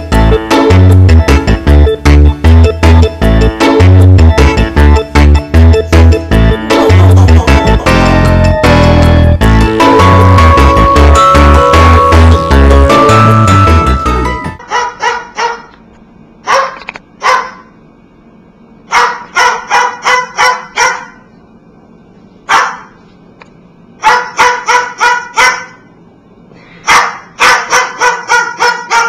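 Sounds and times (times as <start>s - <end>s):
cockatoo mimicking dog bark: 14.6s - 15.8s, 18.9s - 21.2s, 24.0s - 25.8s, 26.8s - 29.0s.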